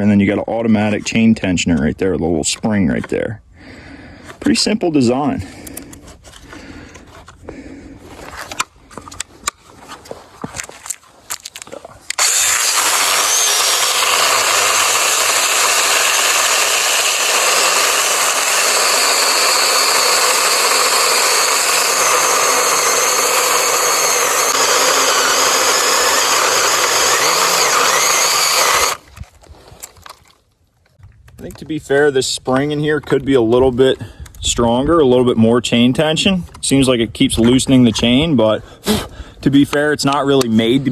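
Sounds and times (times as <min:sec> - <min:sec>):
chainsaw cutting wood: 0:12.1 - 0:29.1.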